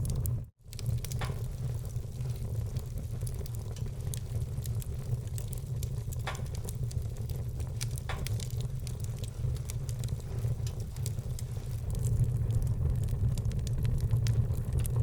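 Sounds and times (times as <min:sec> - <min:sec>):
fire low rumble: 0:00.0 - 0:15.0
wood fire crackling and popping: 0:00.0 - 0:15.0.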